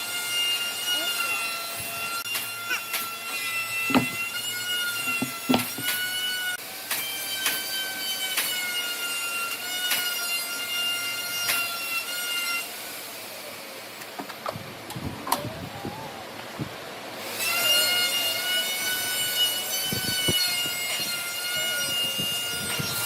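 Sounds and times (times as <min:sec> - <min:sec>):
power tool whining: 0:00.0 - 0:13.2, 0:17.2 - 0:23.0
sharp knocks of wood: 0:03.9 - 0:04.2, 0:05.1 - 0:06.0.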